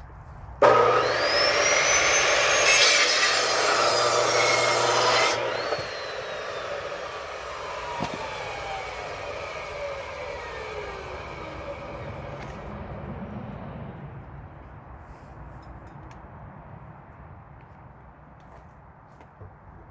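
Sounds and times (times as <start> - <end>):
electric saw cutting wood: 0.6 - 13.0.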